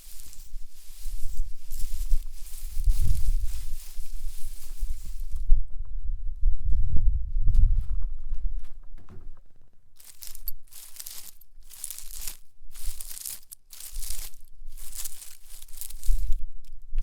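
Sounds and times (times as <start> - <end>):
fingernail scratching spiny leaves: 10.0 - 16.4.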